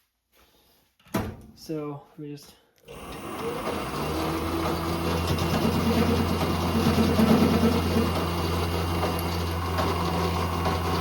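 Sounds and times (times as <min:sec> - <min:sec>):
grinding: 0:02.9 - 0:11.0
metal lathe motor hum: 0:02.9 - 0:11.0.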